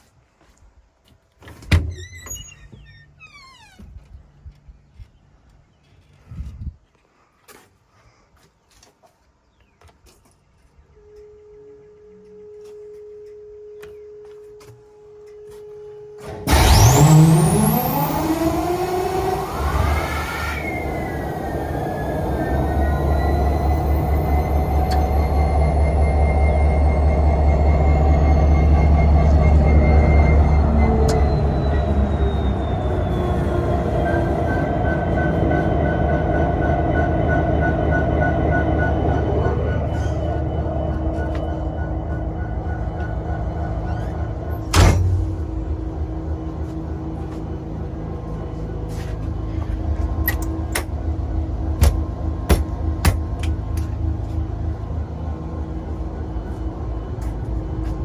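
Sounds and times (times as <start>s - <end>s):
faint steady whine: 10.9s - 58.0s
faint pulsing tone: 11.0s - 58.0s
diesel locomotive engine starting: 15.0s - 58.0s
high whistle: 15.4s - 45.2s.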